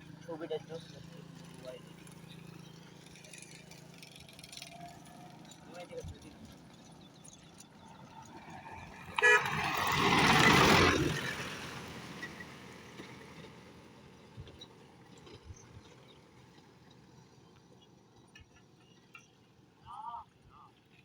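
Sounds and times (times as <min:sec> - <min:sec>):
low road noise: 0:00.0 - 0:21.0
vehicle passing: 0:07.9 - 0:14.1
vehicle horn toot: 0:09.2 - 0:10.1.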